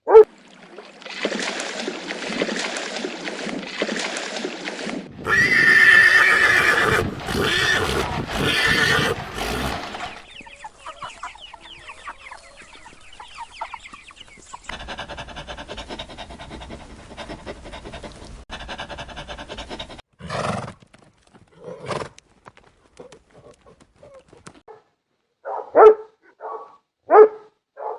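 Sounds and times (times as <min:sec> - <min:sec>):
horse whinnying: 0:05.2 - 0:10.2
short animal calls: 0:05.3 - 0:10.2
faint animal sounds: 0:05.3 - 0:13.7.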